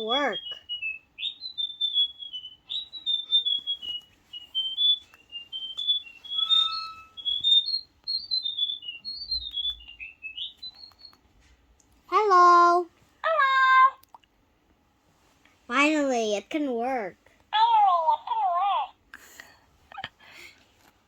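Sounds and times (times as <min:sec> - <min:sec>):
electronic toy bird chirping: 0:00.0 - 0:11.2.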